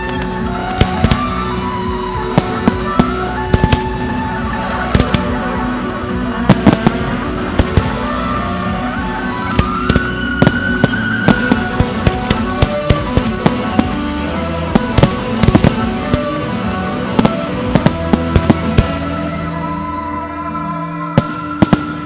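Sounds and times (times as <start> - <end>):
fireworks bursting: 0.0 - 19.3, 21.2 - 22.0
sustained music: 0.0 - 22.0.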